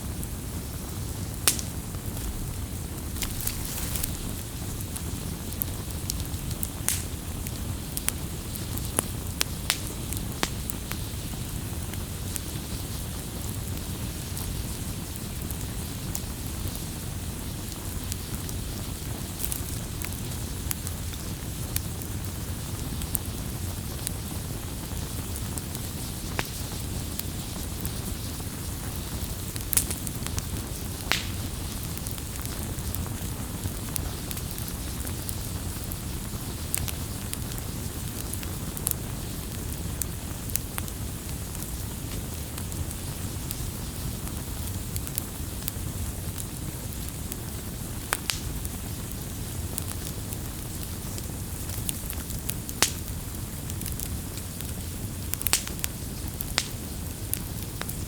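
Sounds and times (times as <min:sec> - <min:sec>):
campfire burning: 0:00.0 - 0:58.0
fire crackles and pops: 0:00.0 - 0:58.0.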